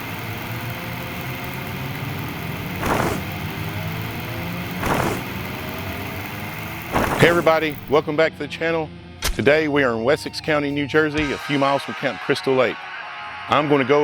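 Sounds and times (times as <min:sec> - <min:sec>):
vehicle engine humming: 0:00.0 - 0:08.3.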